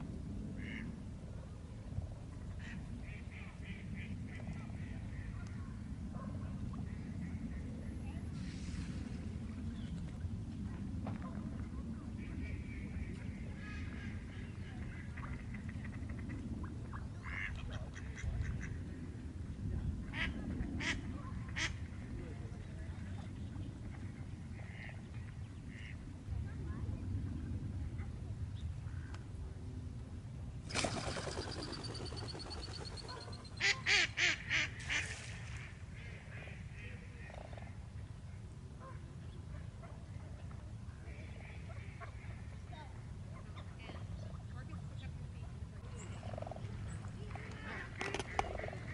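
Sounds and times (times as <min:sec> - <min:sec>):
steady low rumble: 0:00.0 - 0:30.7
distant bird calls: 0:30.7 - 0:34.6.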